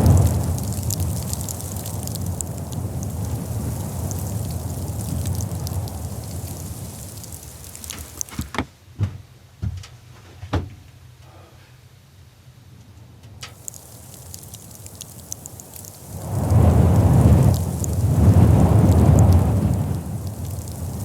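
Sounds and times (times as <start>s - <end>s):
steady rushing noise: 0.0s - 8.3s, 13.6s - 21.0s
faint ticks: 0.0s - 8.4s, 13.3s - 21.0s.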